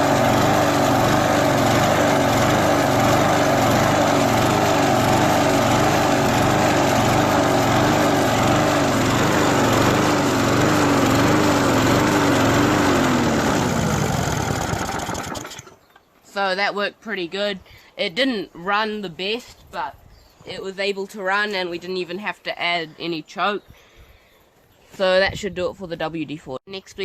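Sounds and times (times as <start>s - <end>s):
lawnmower engine surging: 0.0s - 15.9s.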